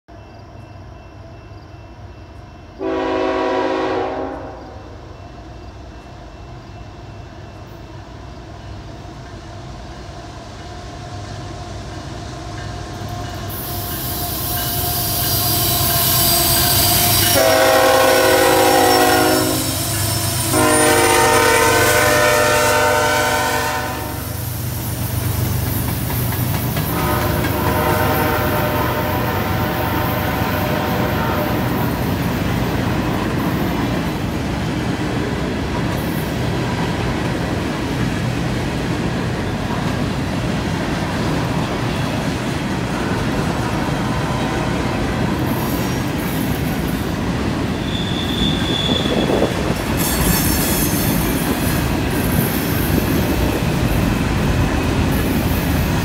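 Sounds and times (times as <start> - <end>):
train rumble: 0.1 - 56.0
train horn blasts: 2.8 - 5.0, 14.3 - 24.4, 26.9 - 32.0, 47.8 - 50.4
freight cars clacking on rails: 24.4 - 56.0.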